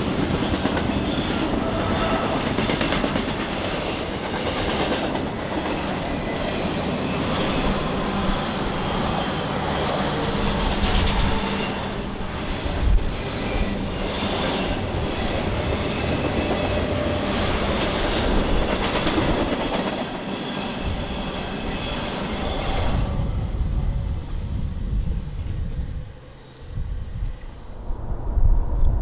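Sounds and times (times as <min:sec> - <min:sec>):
train wheels rolling and clicking: 0:00.0 - 0:22.8.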